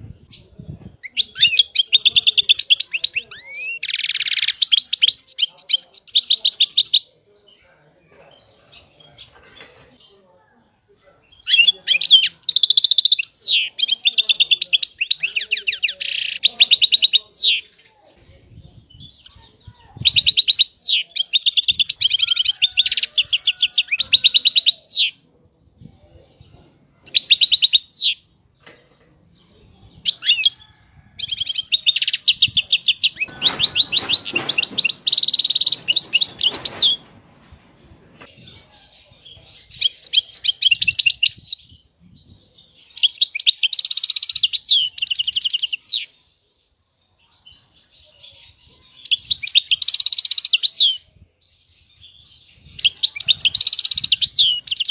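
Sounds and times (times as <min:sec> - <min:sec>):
brief rough noise: 0:32.9 - 0:38.4.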